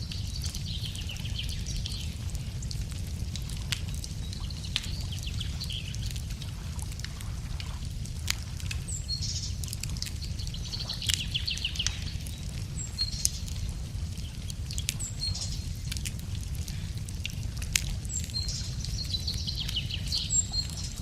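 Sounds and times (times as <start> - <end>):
songbird singing: 0.0 - 2.2, 3.9 - 6.2, 8.8 - 16.0, 18.0 - 21.0
wood fire crackling: 0.0 - 21.0.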